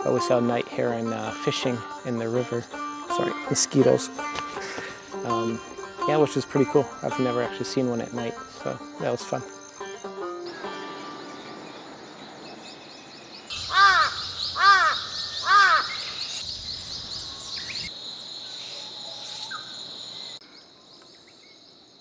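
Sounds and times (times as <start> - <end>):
insects chirping and trilling: 0.0 - 22.0
bird cawing: 13.5 - 20.4.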